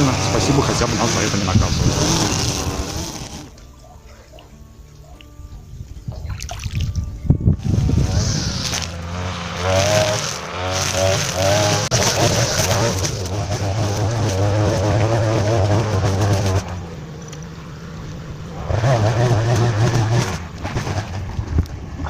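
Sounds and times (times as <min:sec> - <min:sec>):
tractor diesel engine running: 0:07.0 - 0:22.0.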